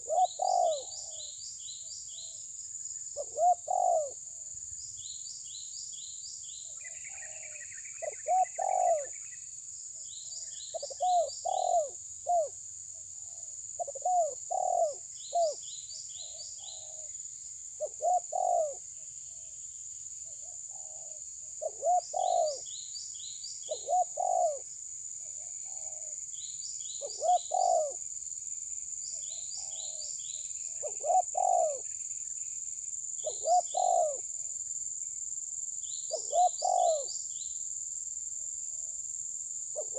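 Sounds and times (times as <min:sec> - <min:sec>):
bird calling low phrases: 0:00.0 - 0:02.4, 0:03.0 - 0:04.5, 0:06.6 - 0:09.5, 0:10.2 - 0:17.2, 0:17.8 - 0:19.5, 0:20.2 - 0:28.0, 0:29.1 - 0:32.0, 0:33.2 - 0:34.4, 0:36.0 - 0:37.3
steady high-pitched hiss: 0:00.0 - 0:39.9.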